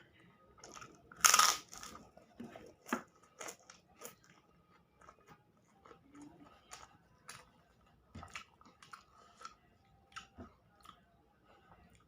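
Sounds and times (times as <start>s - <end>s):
crunchy bite: 1.2s - 2.0s.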